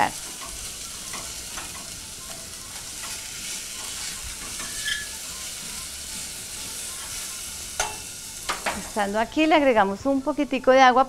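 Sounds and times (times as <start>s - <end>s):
potatoes sizzling in oil: 0.0s - 11.0s
spatula scraping a pan: 0.3s - 8.2s.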